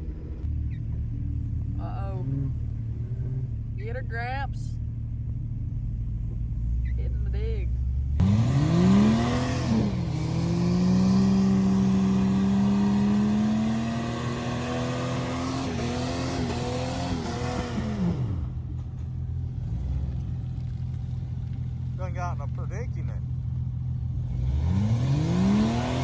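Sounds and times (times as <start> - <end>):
engine revving hard: 8.2 - 18.7, 24.1 - 26.0.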